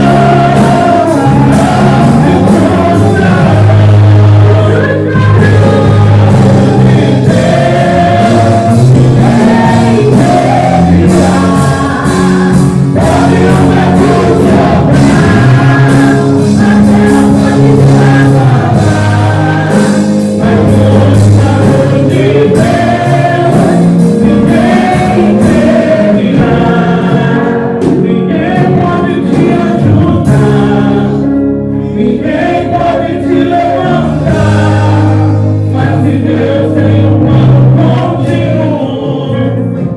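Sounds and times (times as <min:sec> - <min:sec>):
instrumental backing: 0:00.0 - 0:39.9
voices singing together: 0:00.0 - 0:39.9.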